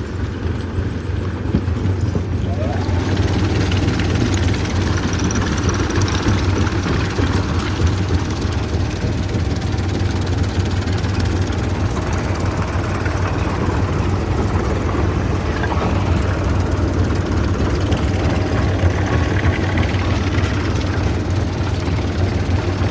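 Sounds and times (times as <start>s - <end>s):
heavy machinery engine humming: 0.0s - 22.9s.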